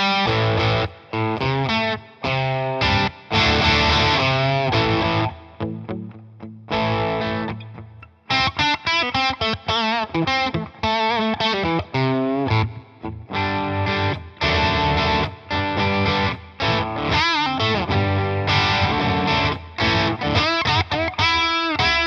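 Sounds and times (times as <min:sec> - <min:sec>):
distorted electric guitar with wah: 0:00.0 - 0:22.0.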